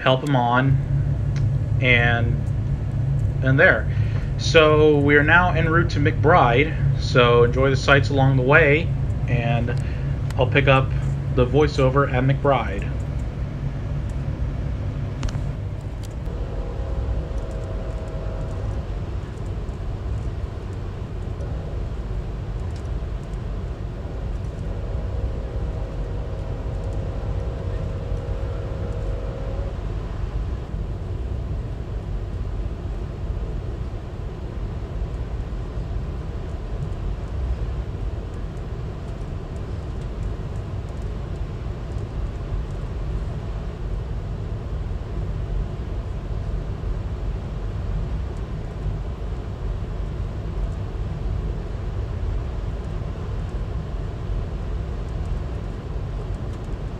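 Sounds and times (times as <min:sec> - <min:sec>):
faint pitched tone: 0:00.0 - 0:31.4
train wheels rumbling on rails: 0:00.0 - 0:46.8.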